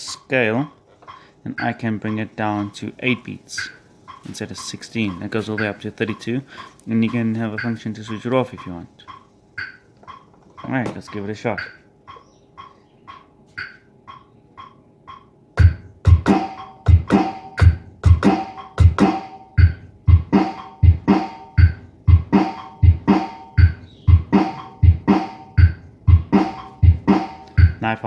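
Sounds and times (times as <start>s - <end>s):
drum machine beat: 0.0s - 28.0s
metronome clicks: 0.1s - 2.8s, 3.6s - 6.3s, 7.0s - 27.8s.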